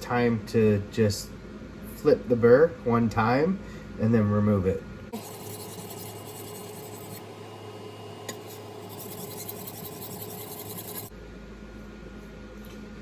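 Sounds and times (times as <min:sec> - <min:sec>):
knife scraping on a water stone: 0:05.2 - 0:07.2, 0:08.3 - 0:11.1.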